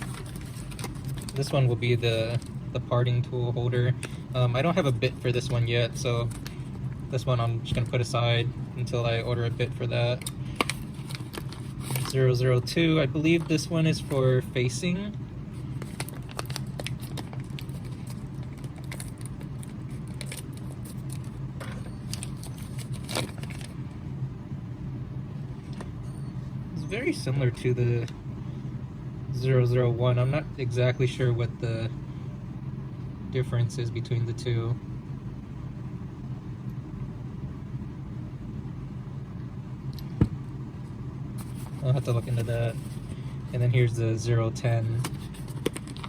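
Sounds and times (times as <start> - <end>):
packaging crinkling: 0.0 - 2.6, 10.2 - 12.2, 15.6 - 21.4, 22.0 - 23.8, 41.4 - 43.6, 44.8 - 46.0
steady low hum: 0.0 - 46.0.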